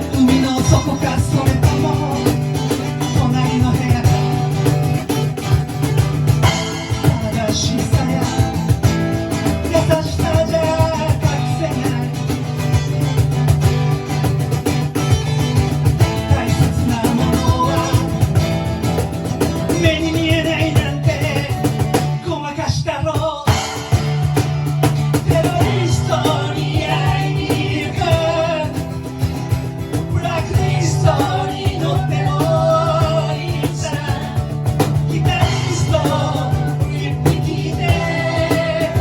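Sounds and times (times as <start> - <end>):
live rock band playing: 0.0 - 22.2, 23.5 - 39.0
drums: 0.0 - 39.0
guitar: 0.0 - 39.0
person singing: 30.1 - 39.0.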